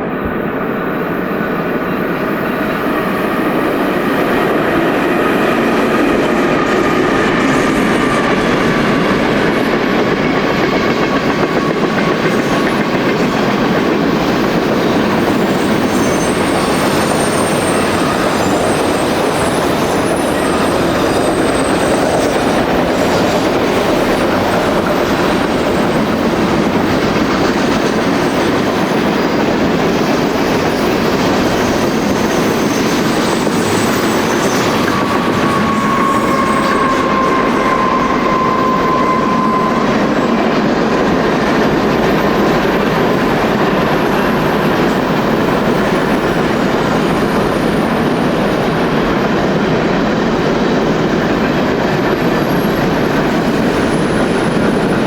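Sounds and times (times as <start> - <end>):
train wheels clattering over rails: 1.5 - 55.0
thin wheel squeal: 15.4 - 22.5, 30.7 - 40.4.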